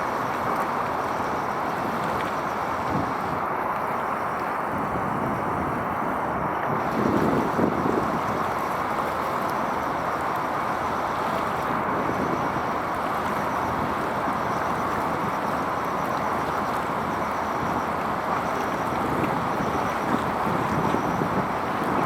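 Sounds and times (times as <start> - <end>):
wind on microphone: 4.7 - 8.7, 17.0 - 22.0.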